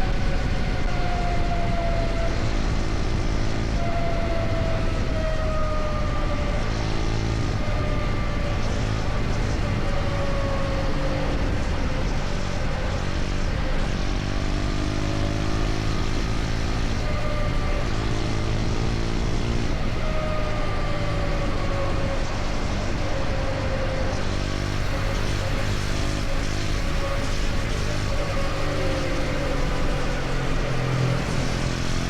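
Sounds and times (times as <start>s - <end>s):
motorcycle engine cruising: 0.0s - 32.0s
road noise: 0.0s - 32.0s
wind noise: 0.0s - 32.0s.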